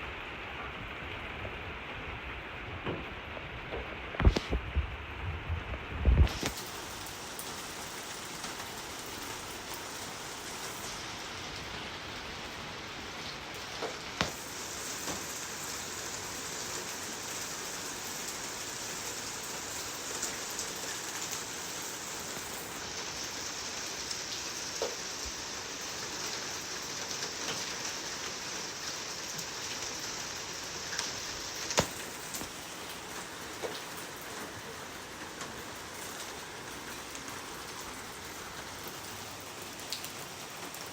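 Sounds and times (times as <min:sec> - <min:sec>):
rain falling on a hard surface: 0:00.0 - 0:40.9
single raindrops striking: 0:13.8 - 0:15.6, 0:30.8 - 0:34.0.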